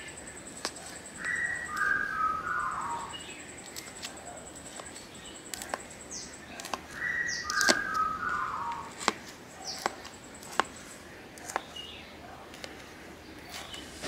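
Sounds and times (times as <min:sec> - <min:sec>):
birds chirping: 0:00.0 - 0:14.0
sharp clicks: 0:06.6 - 0:08.1.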